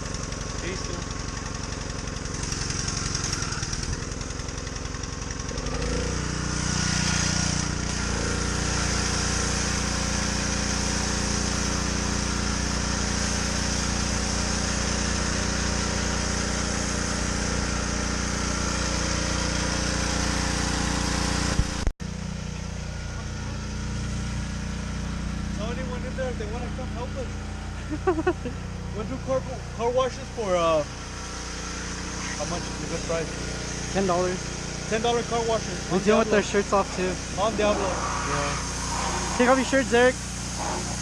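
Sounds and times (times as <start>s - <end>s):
pressure washer engine running: 0.0s - 41.0s
water spray hissing: 5.9s - 21.8s, 30.9s - 41.0s.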